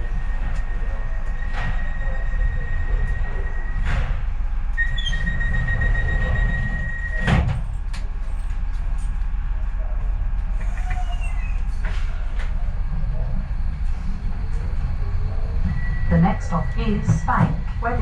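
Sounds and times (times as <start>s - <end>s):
train low rumble: 0.0s - 18.0s
door warning tone: 4.8s - 7.6s, 15.6s - 18.0s.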